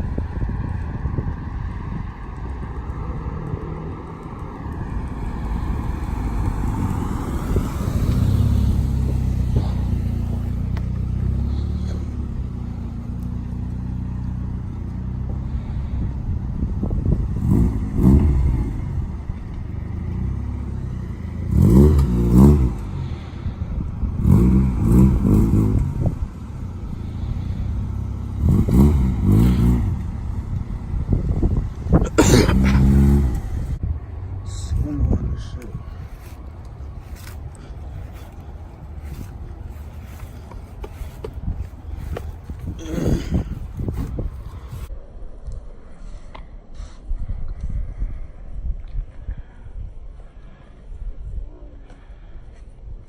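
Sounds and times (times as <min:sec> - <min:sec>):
car engine revving: 0:02.6 - 0:16.2, 0:16.8 - 0:33.8.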